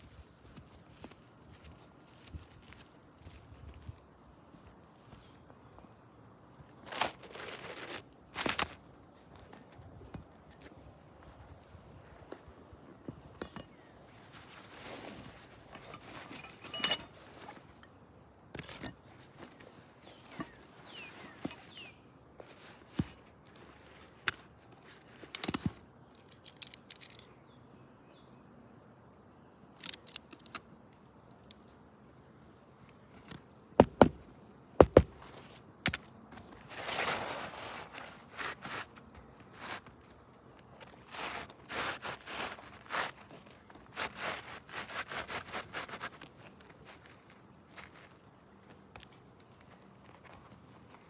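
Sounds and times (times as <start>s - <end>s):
scraping and rustling on roof: 6.7s - 9.9s, 14.1s - 17.8s, 36.3s - 48.3s.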